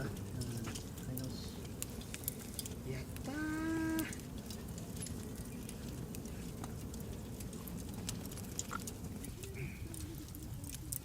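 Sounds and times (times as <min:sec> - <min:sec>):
fire crackling and popping: 0:00.0 - 0:11.0
low steady rumble: 0:00.0 - 0:11.0
faint voices: 0:02.5 - 0:11.0.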